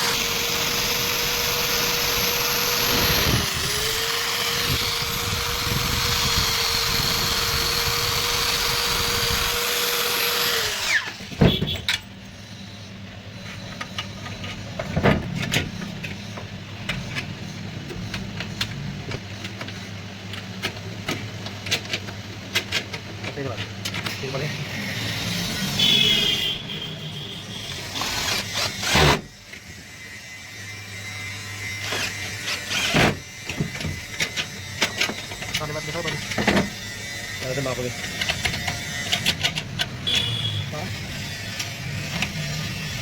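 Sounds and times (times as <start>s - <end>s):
power drill running: 0.0s - 11.2s, 27.5s - 43.0s.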